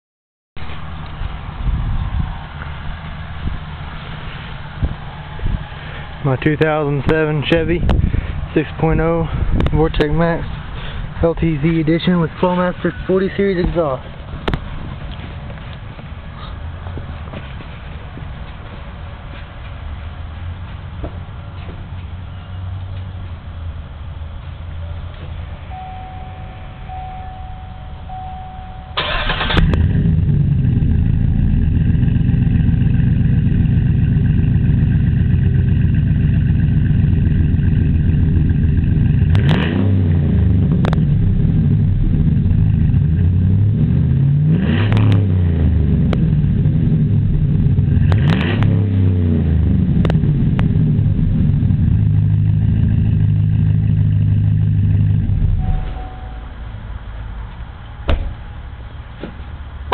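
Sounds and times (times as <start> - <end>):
truck engine starting and idling: 25.7 - 59.9
engine revving: 29.0 - 56.1.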